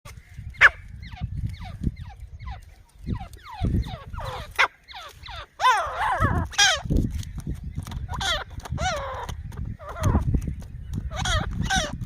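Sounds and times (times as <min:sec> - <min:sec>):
bird calling harshly: 0:00.1 - 0:07.0, 0:08.0 - 0:12.0.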